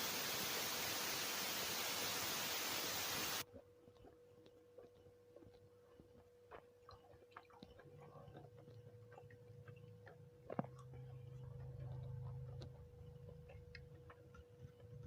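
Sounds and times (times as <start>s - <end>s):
faint steady hum: 0.0s - 15.0s
person chewing softly: 3.4s - 15.0s.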